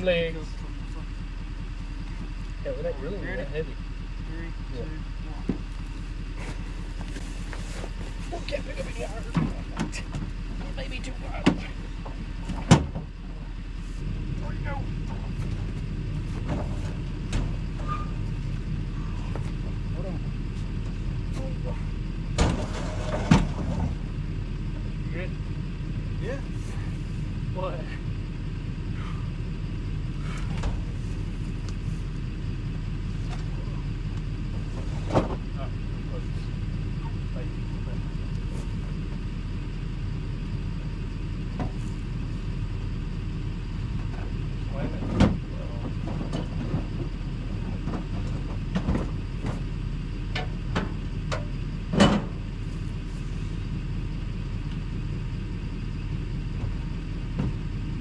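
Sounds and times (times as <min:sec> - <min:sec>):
vehicle engine idling: 0:00.0 - 0:58.0
sharp knocks and clunks: 0:11.4 - 0:13.2, 0:22.4 - 0:24.0, 0:50.3 - 0:52.4.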